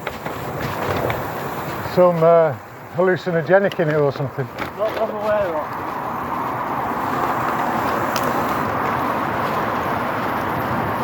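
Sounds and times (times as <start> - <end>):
tyres rolling: 0.0 - 11.0
wind over microphone: 4.4 - 11.0.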